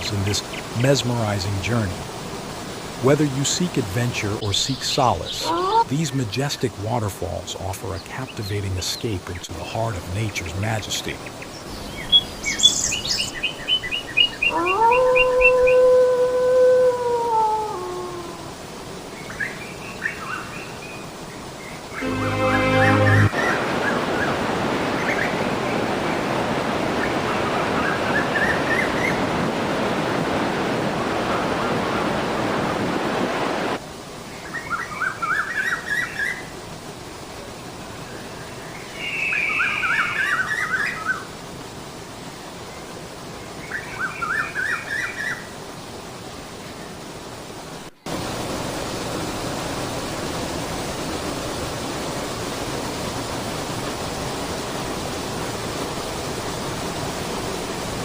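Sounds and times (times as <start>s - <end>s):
falling water rushing: 0.0s - 58.0s
bird calls and trills: 11.1s - 16.3s, 38.0s - 41.3s, 43.4s - 45.5s.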